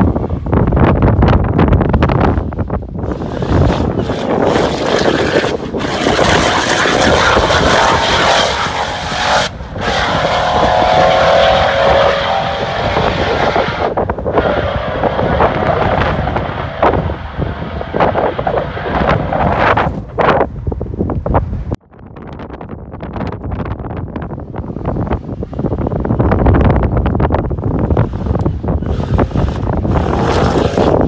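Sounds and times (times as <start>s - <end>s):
car engine at full throttle: 0.0s - 20.4s, 24.0s - 31.0s.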